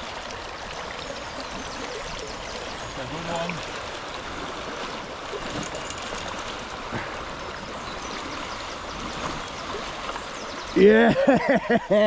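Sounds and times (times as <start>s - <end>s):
river water rushing: 0.0s - 10.9s.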